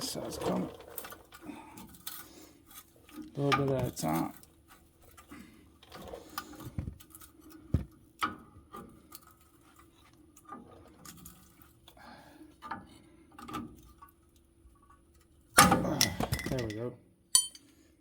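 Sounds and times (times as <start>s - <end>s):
metal tool clicking and scraping: 17.4s - 17.7s.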